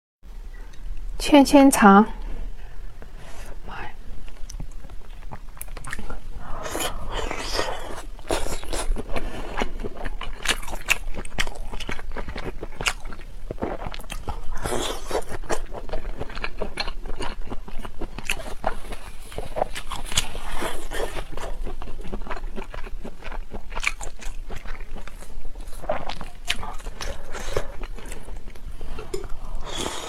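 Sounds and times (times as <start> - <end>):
biting and chewing: 4.3 - 30.0.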